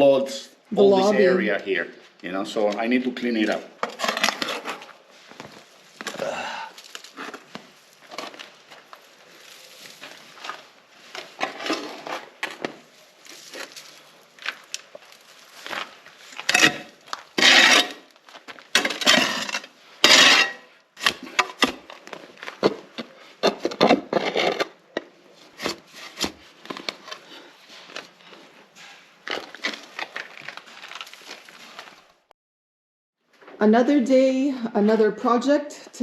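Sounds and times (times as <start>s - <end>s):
shovel scraping dirt: 9.6s - 14.0s, 15.5s - 24.8s.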